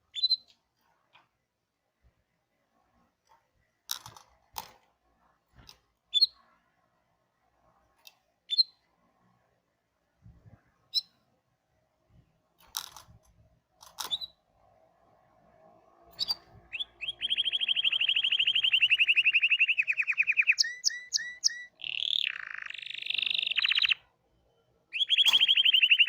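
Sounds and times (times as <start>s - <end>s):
canary chirping: 0.1s - 0.5s, 6.1s - 6.4s, 8.5s - 8.8s, 10.9s - 11.2s, 13.9s - 14.5s, 16.1s - 26.0s
small clicks: 3.2s - 4.9s, 12.6s - 14.4s.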